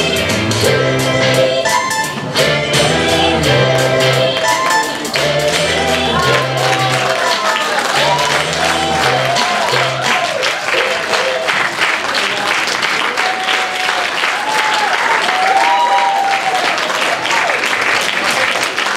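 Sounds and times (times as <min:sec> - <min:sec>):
music ending: 0:00.0 - 0:11.5
voices calling out: 0:03.1 - 0:11.7
audience applauding: 0:04.4 - 0:18.9.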